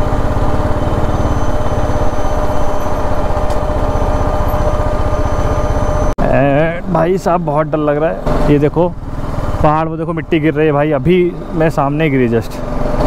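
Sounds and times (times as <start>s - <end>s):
thin whine: 0.0s - 8.4s
motorcycle engine running: 0.0s - 13.0s.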